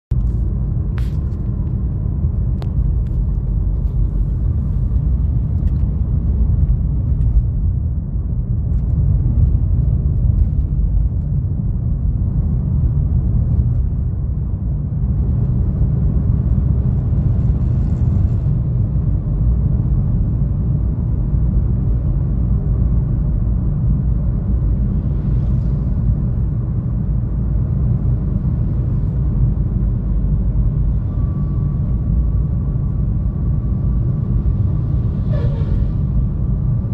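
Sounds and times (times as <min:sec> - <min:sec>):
car driving rumble: 0:00.1 - 0:36.9.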